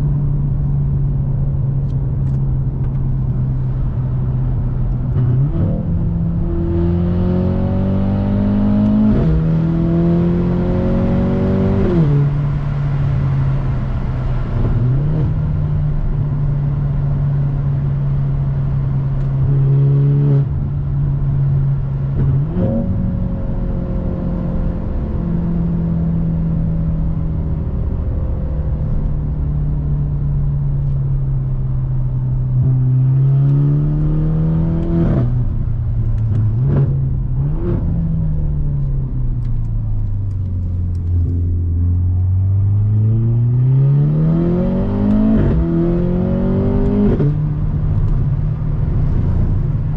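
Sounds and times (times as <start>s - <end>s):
turbocharged car engine revving: 41.0s - 49.9s.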